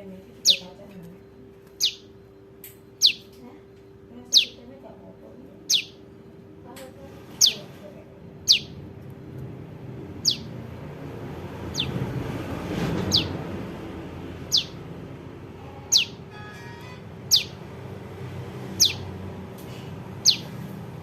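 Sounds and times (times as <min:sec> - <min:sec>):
bird calling sharp downward notes: 0:01.8 - 0:02.1, 0:02.9 - 0:03.4, 0:05.6 - 0:06.1, 0:08.4 - 0:08.8, 0:10.2 - 0:10.6, 0:11.7 - 0:12.0, 0:13.0 - 0:13.4, 0:14.5 - 0:14.9, 0:15.8 - 0:16.3, 0:17.2 - 0:17.6, 0:18.8 - 0:19.1, 0:20.2 - 0:20.6.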